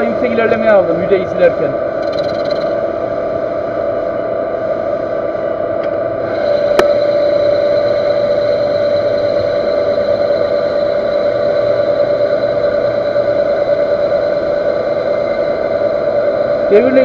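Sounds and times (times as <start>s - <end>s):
metal lathe whine with cutting: 0.0s - 17.0s
sharp click: 6.7s - 7.0s.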